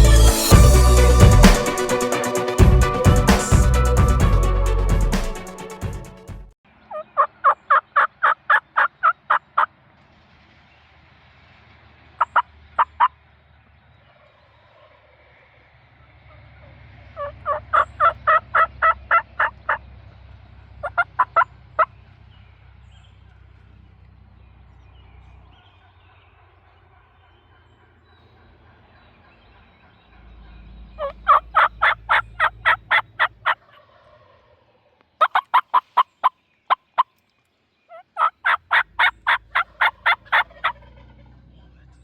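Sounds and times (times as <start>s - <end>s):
wild turkey calling: 6.9s - 9.7s, 12.2s - 13.1s, 16.3s - 20.0s, 20.6s - 23.8s, 24.7s - 37.3s, 37.9s - 42.0s.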